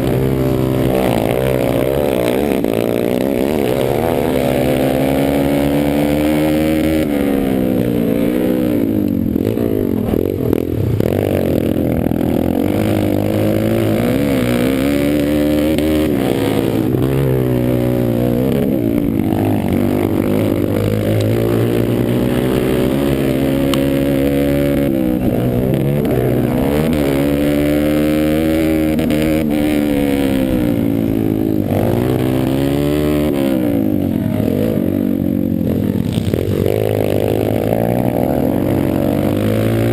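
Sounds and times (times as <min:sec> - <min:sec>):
pit bike engine revving: 0:00.0 - 0:39.9.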